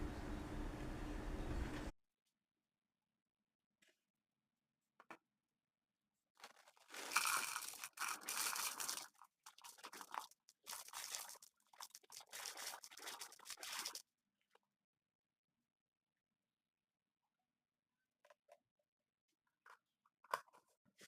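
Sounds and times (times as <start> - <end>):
snack food crunching and crinkling: 6.4 - 14.0.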